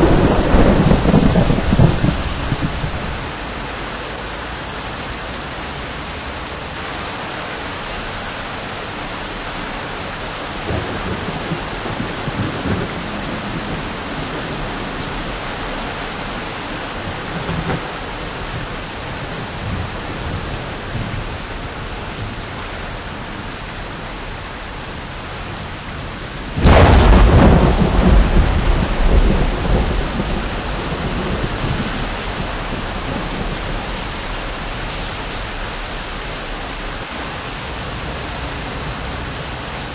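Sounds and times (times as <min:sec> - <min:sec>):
loud thunderclap: 0:00.0 - 0:03.3, 0:10.7 - 0:15.4, 0:17.1 - 0:17.9, 0:26.6 - 0:35.6
thunder rolling: 0:00.0 - 0:03.4, 0:10.6 - 0:21.4, 0:26.5 - 0:37.0
steady rain: 0:00.0 - 0:39.9.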